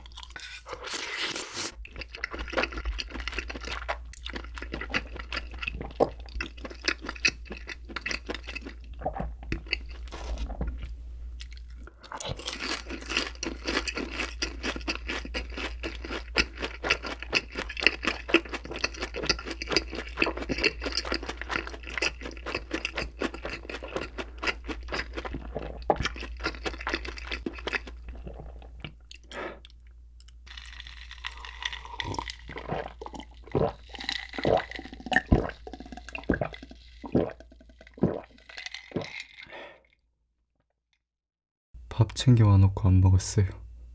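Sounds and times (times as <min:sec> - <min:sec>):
crunchy chewing: 0:00.0 - 0:37.4
gulping a drink: 0:01.8 - 0:10.8, 0:31.1 - 0:39.9.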